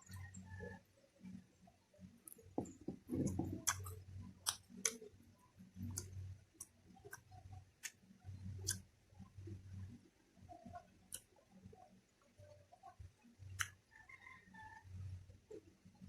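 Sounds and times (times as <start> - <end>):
chewing rumble: 2.3 - 8.8
wet mouth clicks and smacks: 3.2 - 5.0, 8.6 - 8.8.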